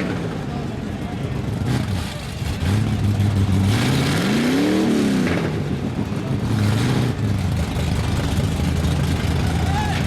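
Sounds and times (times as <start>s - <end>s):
truck engine revving: 1.6s - 5.5s.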